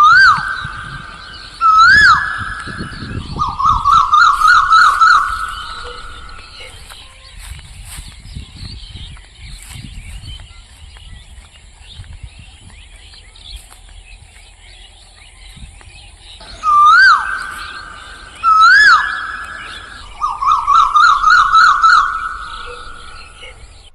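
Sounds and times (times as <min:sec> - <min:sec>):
fast wavering bird trill: 0:00.0 - 0:08.0, 0:16.4 - 0:23.9
loud swooping whistled calls: 0:00.0 - 0:11.3, 0:14.4 - 0:23.9
small birds chirping: 0:00.0 - 0:23.9.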